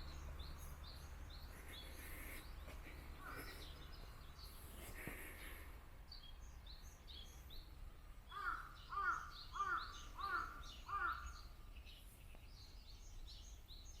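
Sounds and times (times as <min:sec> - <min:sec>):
small birds chirping: 0:00.0 - 0:14.0
crow cawing: 0:08.3 - 0:11.4.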